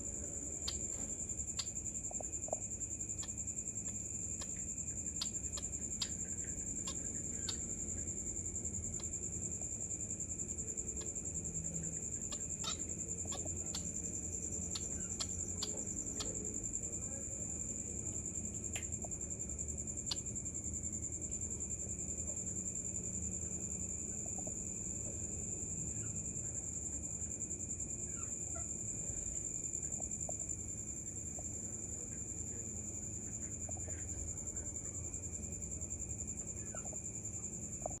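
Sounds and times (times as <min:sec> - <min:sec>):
bird chirps: 0:12.2 - 0:13.9.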